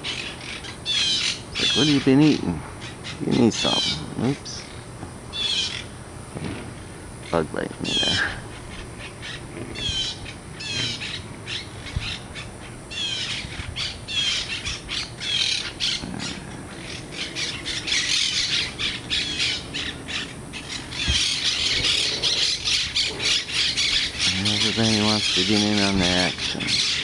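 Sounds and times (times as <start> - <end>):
parrots squawking: 0.0 - 6.0, 7.2 - 27.0.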